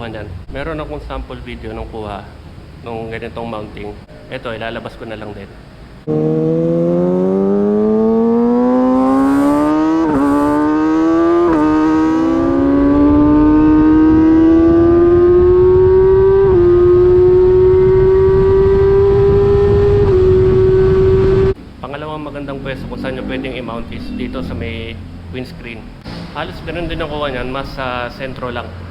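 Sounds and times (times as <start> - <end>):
motorcycle engine accelerating: 6.0 - 21.6
wind noise on microphone: 12.3 - 21.6.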